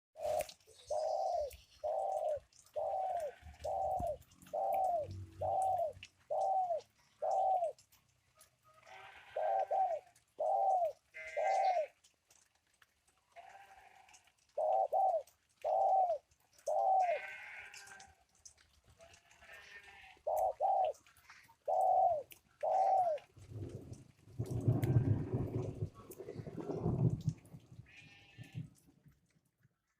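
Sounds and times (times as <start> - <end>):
bird hooting: 0.2 - 7.7, 9.4 - 11.9, 21.7 - 23.2
rough low rasping bird call: 9.2 - 11.9.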